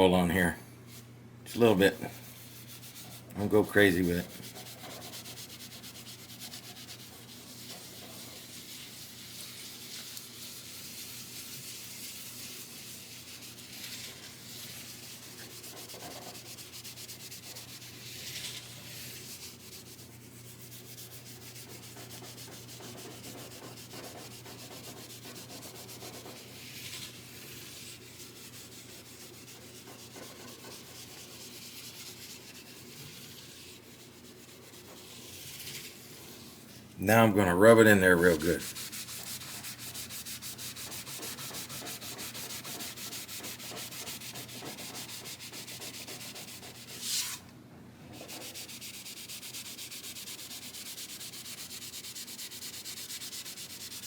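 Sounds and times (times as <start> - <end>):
cloth rubbing on fretboard: 38.2 - 47.4.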